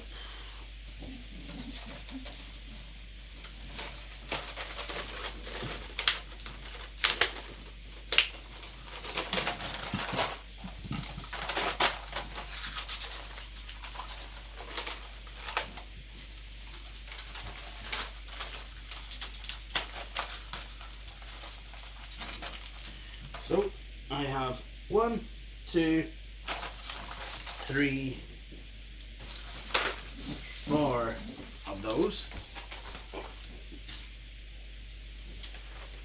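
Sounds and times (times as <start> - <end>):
packaging rustling: 3.6 - 23.2.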